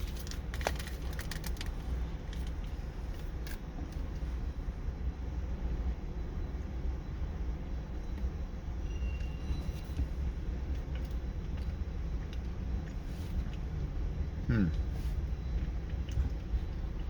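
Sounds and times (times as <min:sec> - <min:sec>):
faint clicks and crinkles: 0:00.0 - 0:04.2
steady low rumble: 0:00.0 - 0:17.0.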